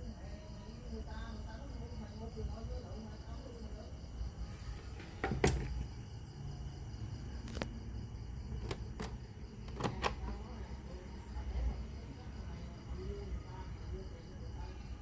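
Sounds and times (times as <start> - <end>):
sharp clicks and light knocks: 8.5 - 10.4.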